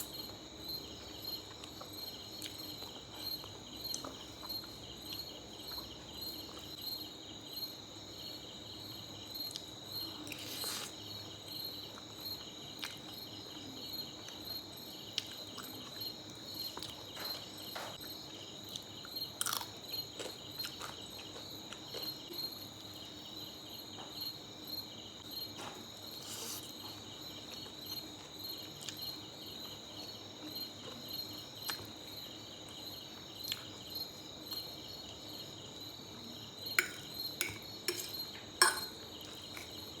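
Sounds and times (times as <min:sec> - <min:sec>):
crickets chirping: 0:00.0 - 0:40.0
person eating noodles: 0:26.2 - 0:26.7.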